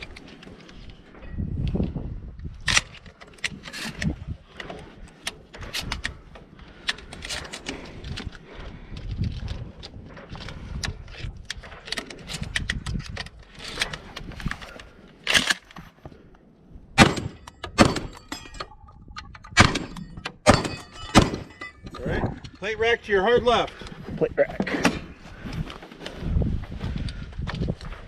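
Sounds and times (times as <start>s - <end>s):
gear rattling: 0.0s - 15.9s
loud sharp gunshots: 17.0s - 18.1s
metallic ring of steel targets: 17.0s - 18.8s, 19.5s - 22.0s.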